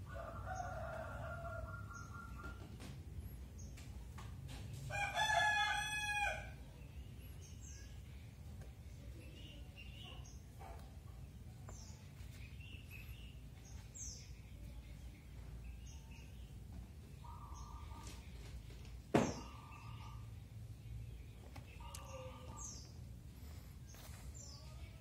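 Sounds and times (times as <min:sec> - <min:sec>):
small birds chirping: 0:06.7 - 0:25.0.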